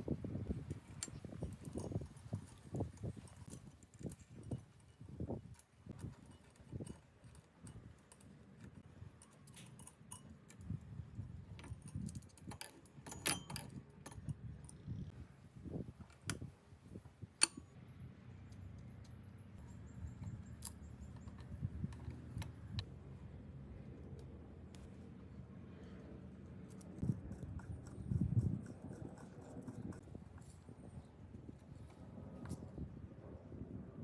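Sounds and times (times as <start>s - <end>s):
metallic clicks of hand tools: 0.7s - 10.9s, 11.6s - 14.8s, 17.4s - 17.7s.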